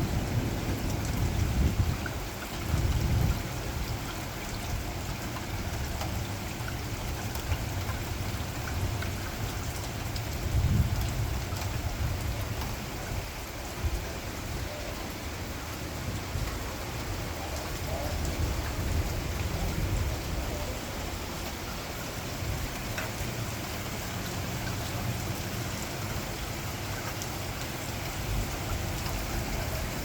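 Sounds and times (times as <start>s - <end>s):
thunder rumbling: 0.0s - 7.0s, 7.6s - 24.0s
heavy rain falling: 0.0s - 30.0s.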